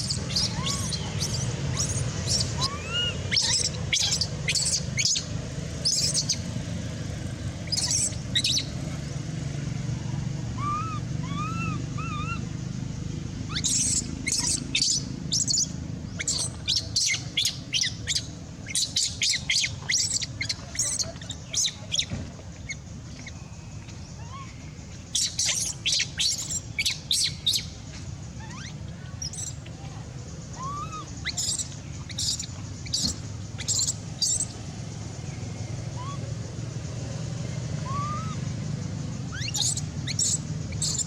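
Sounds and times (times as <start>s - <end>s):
shrill animal chirps and squeaks: 0.0s - 5.3s, 5.9s - 6.4s, 7.7s - 8.7s, 10.6s - 12.4s, 13.5s - 22.1s, 24.1s - 27.7s, 28.4s - 29.6s, 30.6s - 34.5s, 39.3s - 41.0s
steady low hum: 0.0s - 41.0s.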